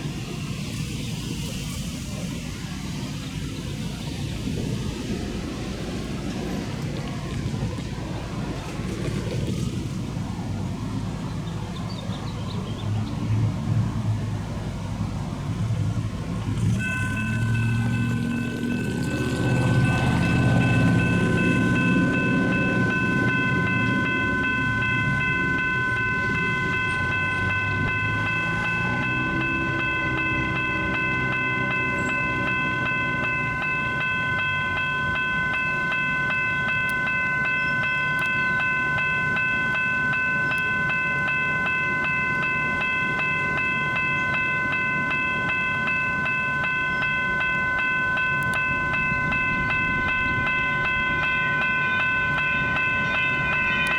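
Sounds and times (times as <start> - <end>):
train rumbling past: 0.0 - 53.9
crossing warning bell ringing: 14.7 - 53.9.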